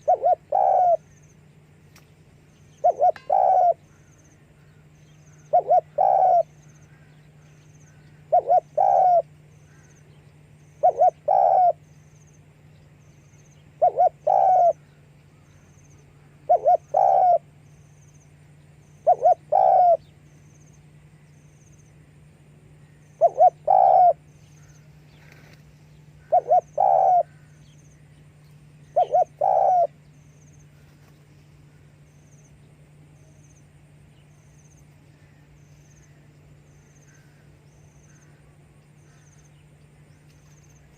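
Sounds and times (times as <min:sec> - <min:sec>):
dove cooing: 0:00.0 - 0:01.2, 0:02.7 - 0:10.0, 0:10.7 - 0:11.9, 0:13.6 - 0:17.8, 0:18.9 - 0:20.1, 0:22.8 - 0:27.8, 0:28.8 - 0:31.1
faint low hum: 0:00.0 - 0:40.9.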